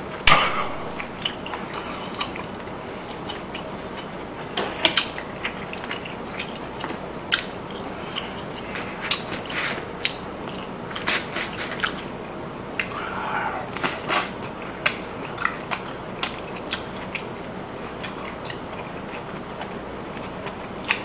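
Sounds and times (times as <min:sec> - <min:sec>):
person chewing: 0:00.2 - 0:21.0
wet mouth smacks: 0:12.8 - 0:13.0.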